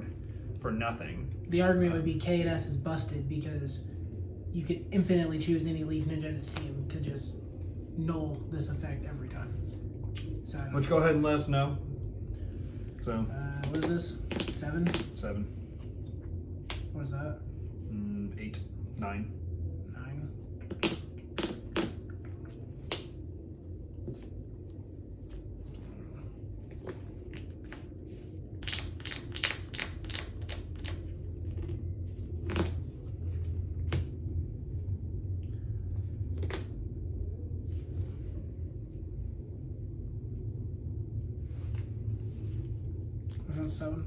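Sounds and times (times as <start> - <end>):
steady low hum: 0.0 - 44.0
trading cards clicking and tapping: 13.6 - 15.2, 20.6 - 23.2, 28.6 - 31.0.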